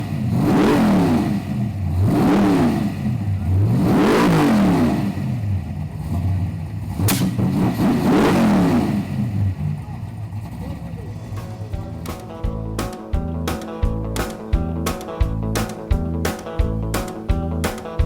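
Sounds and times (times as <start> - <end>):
car engine revving: 0.0 - 18.0
sharp click: 7.0 - 7.4.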